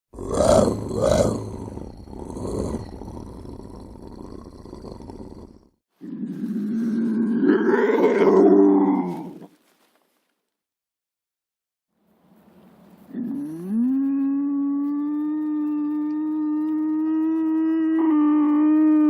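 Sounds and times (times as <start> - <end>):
lynx growling: 0.1 - 9.5.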